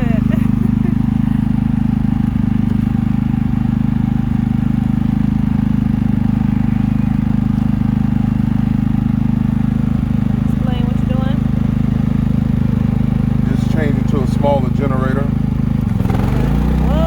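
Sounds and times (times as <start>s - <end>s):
generator engine running: 0.0s - 17.0s.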